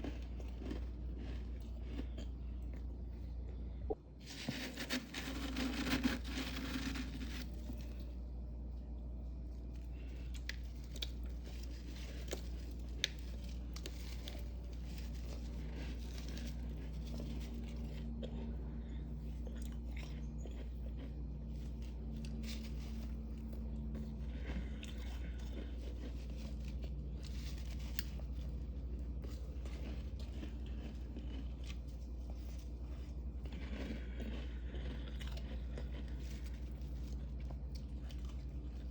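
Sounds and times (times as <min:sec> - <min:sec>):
steady low hum: 0:00.0 - 0:38.9
frost being crunched: 0:04.2 - 0:08.2, 0:09.7 - 0:18.0, 0:24.6 - 0:33.5.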